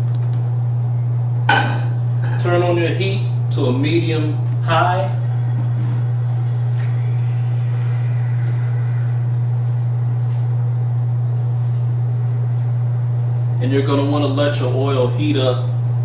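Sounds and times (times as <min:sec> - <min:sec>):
loud low hum: 0:00.0 - 0:16.0.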